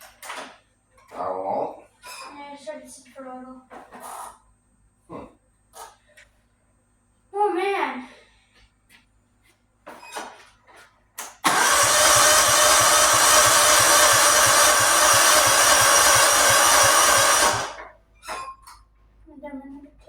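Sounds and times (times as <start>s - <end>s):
starter cranking engine: 11.4s - 17.9s.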